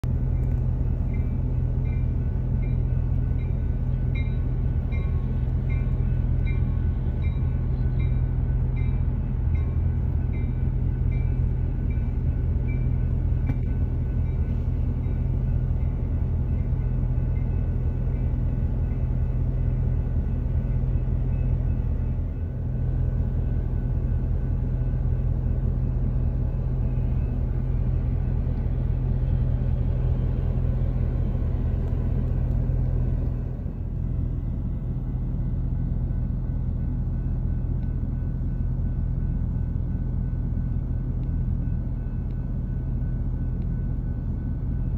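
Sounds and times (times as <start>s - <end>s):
train rumbling past: 0.0s - 44.9s
crossing signal bell ringing: 0.3s - 29.0s.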